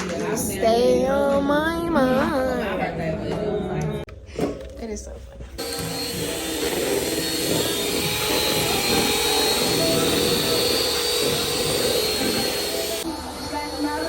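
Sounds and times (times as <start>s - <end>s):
electric motor whirring hum: 5.6s - 14.0s.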